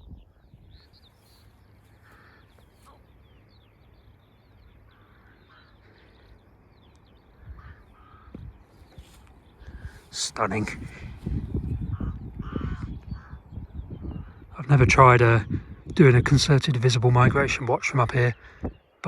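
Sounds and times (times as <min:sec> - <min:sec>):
songbirds chirping: 0:00.0 - 0:19.0
distant crow cawing: 0:01.3 - 0:14.8.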